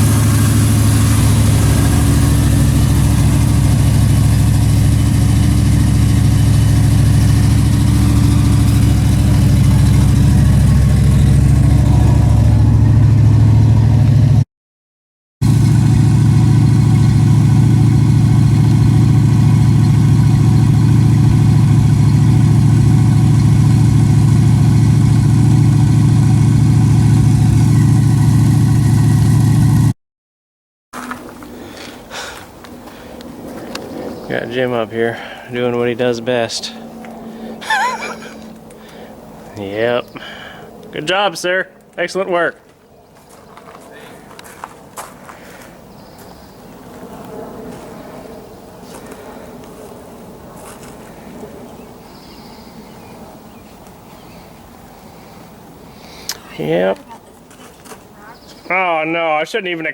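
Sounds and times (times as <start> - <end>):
car engine idling: 0.0 - 14.4, 15.4 - 29.9.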